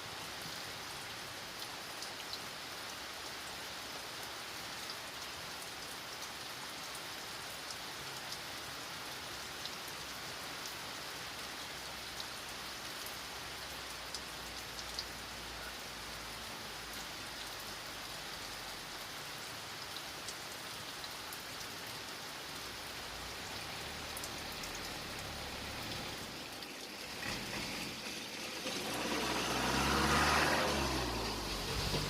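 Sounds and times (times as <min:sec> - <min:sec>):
steady rain falling: 0:00.0 - 0:32.0
engine: 0:23.9 - 0:32.0.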